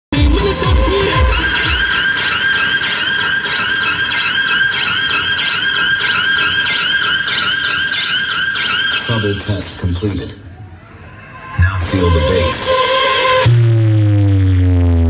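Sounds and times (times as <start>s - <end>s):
rising-and-falling chirps: 1.0s - 9.2s
high whistle test tone: 11.1s - 13.6s.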